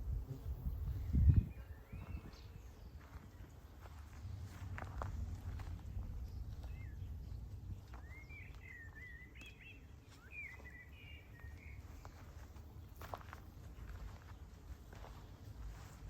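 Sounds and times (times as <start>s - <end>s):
steady low rumble: 3.0s - 9.1s.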